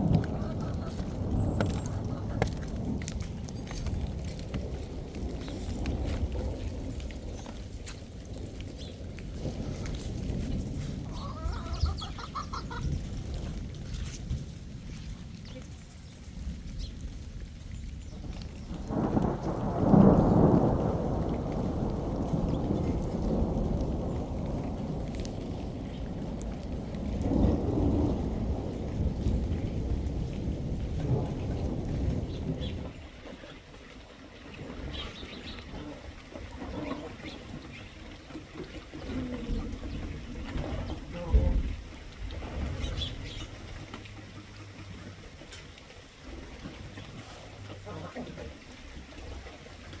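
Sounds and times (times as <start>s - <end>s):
rain falling: 0.0s - 50.0s
thunder rolling: 0.0s - 50.0s.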